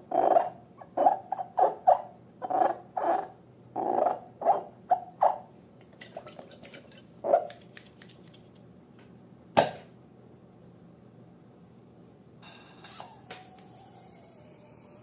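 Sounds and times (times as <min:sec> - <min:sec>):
slime squelching: 0:06.0 - 0:08.6.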